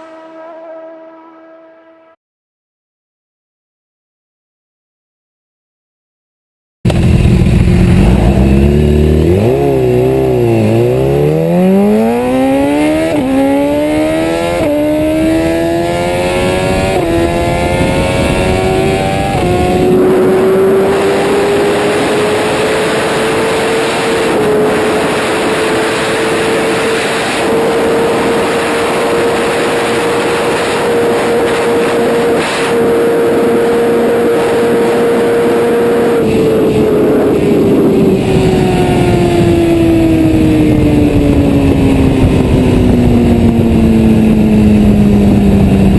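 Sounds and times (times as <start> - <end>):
motorcycle engine accelerating: 0.0 - 2.2, 6.9 - 45.9.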